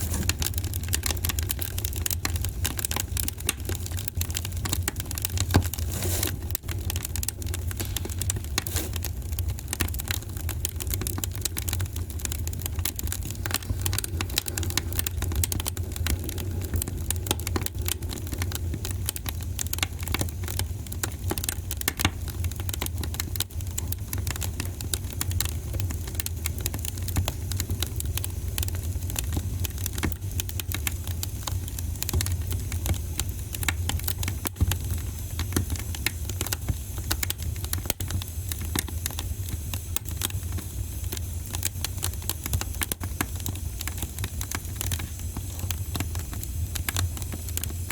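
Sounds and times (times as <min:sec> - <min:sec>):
low rumble of fire: 0:00.0 - 0:47.9
wood fire crackling and popping: 0:00.0 - 0:47.9.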